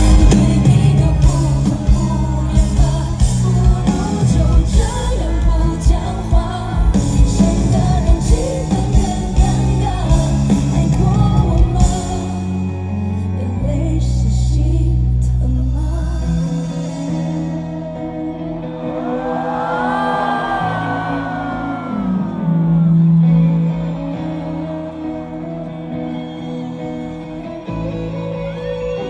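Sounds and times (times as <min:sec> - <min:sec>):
woman singing: 0:00.0 - 0:22.4
band playing pop ballad: 0:00.0 - 0:29.0.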